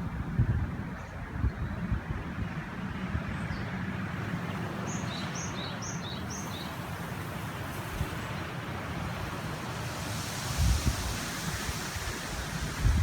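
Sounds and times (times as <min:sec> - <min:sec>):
wind on microphone: 0:00.0 - 0:03.6, 0:07.8 - 0:13.0
river rushing: 0:04.0 - 0:13.0
bird chirping: 0:04.9 - 0:06.8.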